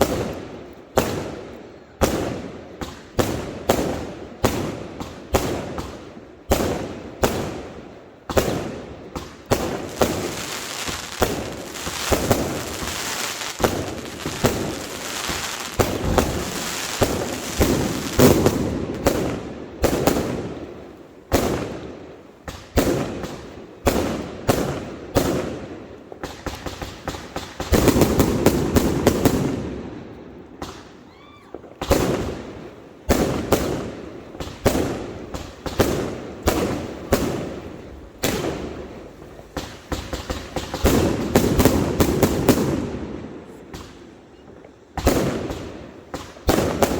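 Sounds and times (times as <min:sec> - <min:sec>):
fireworks crackling: 0:00.0 - 0:29.8, 0:31.6 - 0:46.9
fireworks bangs: 0:00.0 - 0:46.9.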